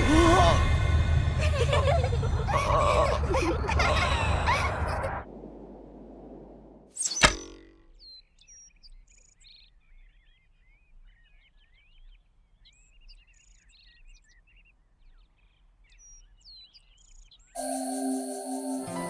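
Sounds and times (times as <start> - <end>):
small birds chirping and twittering: 7.0 - 19.0.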